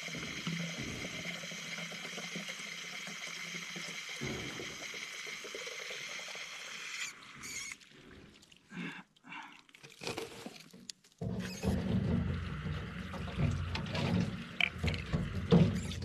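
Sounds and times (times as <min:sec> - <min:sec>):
water running into container: 0:00.0 - 0:16.0
small knocks and splashes: 0:09.5 - 0:16.0.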